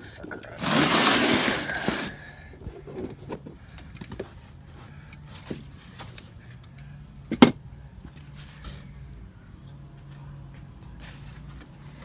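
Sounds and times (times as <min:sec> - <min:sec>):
loud metal clank: 0:07.3 - 0:07.6
metal parts clinking: 0:07.3 - 0:07.6.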